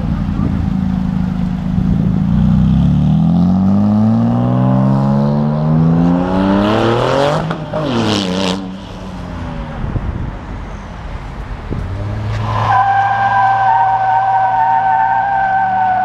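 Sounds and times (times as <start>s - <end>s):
car engine accelerating: 0.0s - 10.8s.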